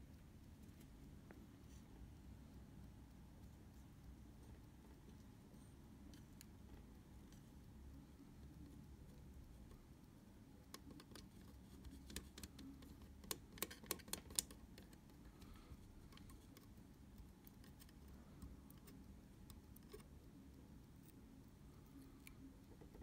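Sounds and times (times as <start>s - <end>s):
low steady hum: 0.0s - 23.0s
small tool clicks and taps: 10.7s - 16.8s.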